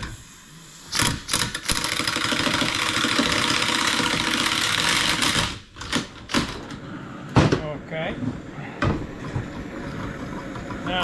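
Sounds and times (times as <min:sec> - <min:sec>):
impact wrench rattling: 0:01.0 - 0:05.8.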